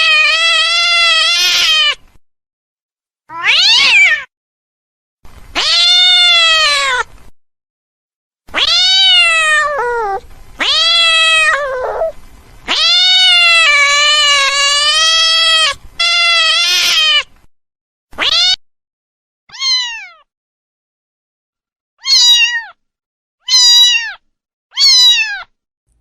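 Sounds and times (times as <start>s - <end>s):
cat meowing: 0.0s - 2.0s, 3.3s - 4.3s, 5.6s - 7.1s, 8.5s - 17.3s, 18.2s - 18.6s, 19.5s - 20.2s, 22.0s - 22.8s, 23.4s - 25.5s.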